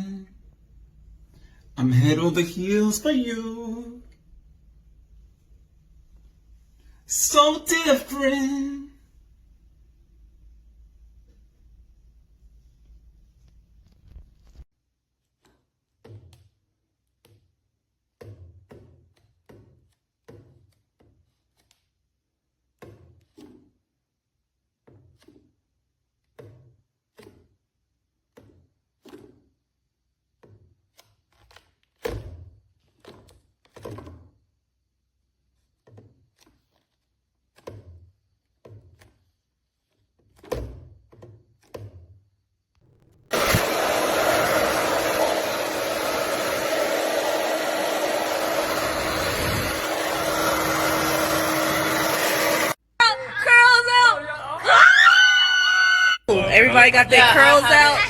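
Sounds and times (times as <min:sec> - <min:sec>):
hair dryer running: 0:43.3 - 0:52.8.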